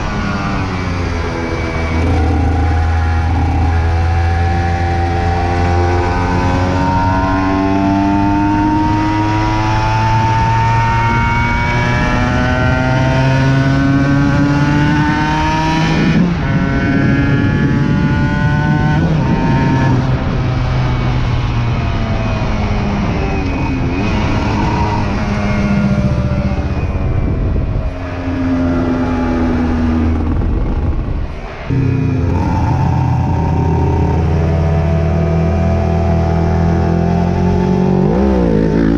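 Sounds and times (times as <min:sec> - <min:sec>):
two-stroke motorcycle engine revving: 0:00.0 - 0:20.4, 0:31.7 - 0:38.9.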